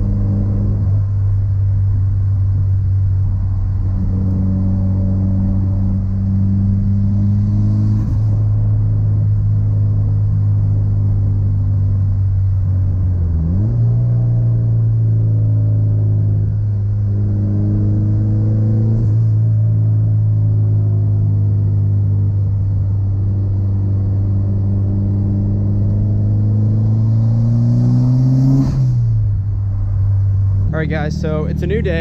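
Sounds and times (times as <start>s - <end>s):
turbocharged car engine pulling: 30.6s - 32.0s.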